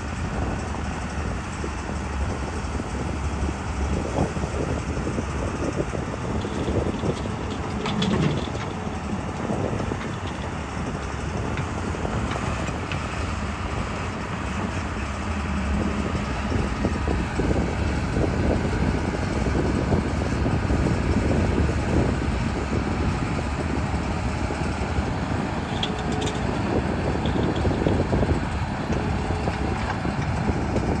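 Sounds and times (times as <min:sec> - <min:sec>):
diesel engine rumbling: 0:00.0 - 0:31.0.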